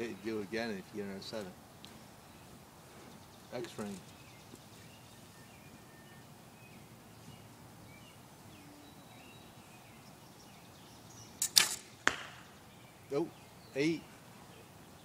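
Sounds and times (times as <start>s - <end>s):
faint bird chirps: 2.2s - 11.4s.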